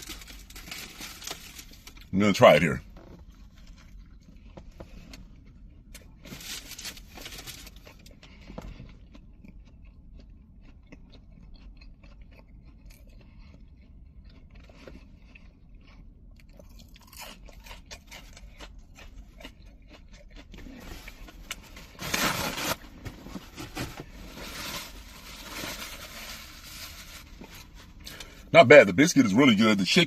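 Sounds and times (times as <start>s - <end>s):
person chewing crunchy food: 2.9s - 28.5s.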